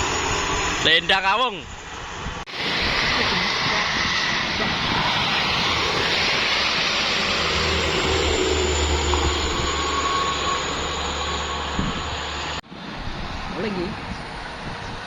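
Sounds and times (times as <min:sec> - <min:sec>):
deep engine drone: 0:01.8 - 0:12.6.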